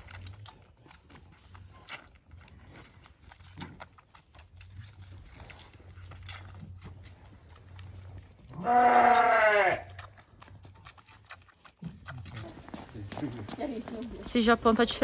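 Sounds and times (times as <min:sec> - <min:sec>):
sheep bleating: 0:08.6 - 0:10.0.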